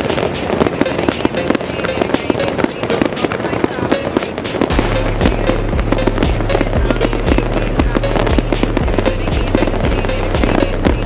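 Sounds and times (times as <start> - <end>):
fireworks crackling and popping: 0.0 - 11.0
music with heavy bass line: 4.4 - 11.0.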